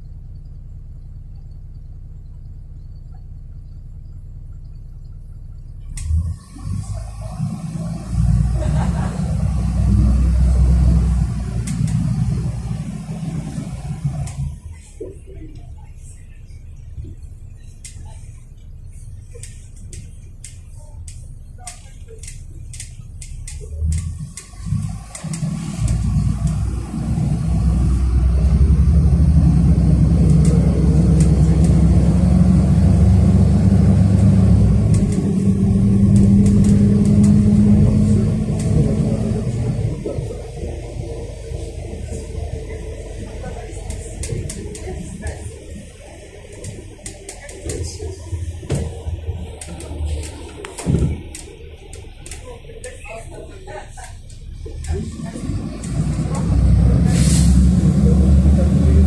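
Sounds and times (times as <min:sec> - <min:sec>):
bus engine and road rumble: 0:00.0 - 0:59.0
faint clicks and rattles: 0:13.4 - 0:27.5, 0:29.9 - 0:56.6.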